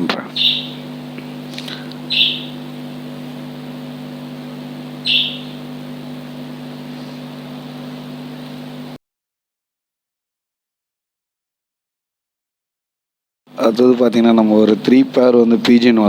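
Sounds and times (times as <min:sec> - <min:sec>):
steady low hum: 0:00.0 - 0:09.0, 0:13.5 - 0:16.0
shrill lovebird chirp: 0:00.4 - 0:00.9, 0:02.1 - 0:02.6, 0:05.0 - 0:05.7.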